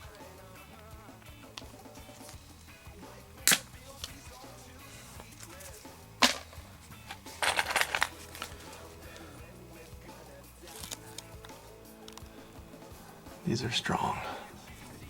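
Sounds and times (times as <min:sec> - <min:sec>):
background music: 0:00.0 - 0:15.0
sharp clicks: 0:03.5 - 0:04.2
small hard objects clattering: 0:05.0 - 0:08.9.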